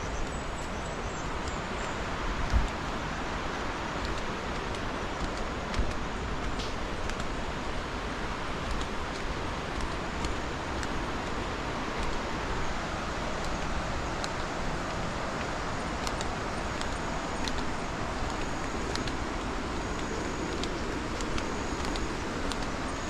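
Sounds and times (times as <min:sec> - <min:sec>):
small waterfall rushing: 0:00.0 - 0:23.0.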